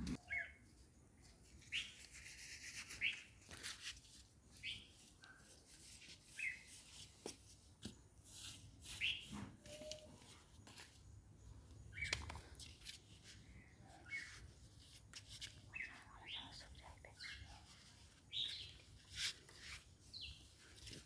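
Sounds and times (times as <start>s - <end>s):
small bird chirping: 0.1s - 7.0s, 8.8s - 12.8s, 13.4s - 20.9s
hands rustling dry dirt and leaves: 0.6s - 11.2s.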